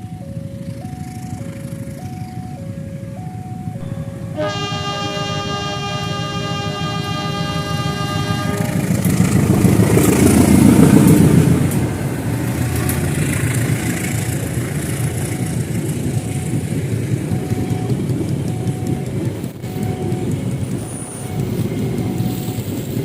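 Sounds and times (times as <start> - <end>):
train rumbling past: 0.0 - 23.0
train horn: 3.8 - 11.9.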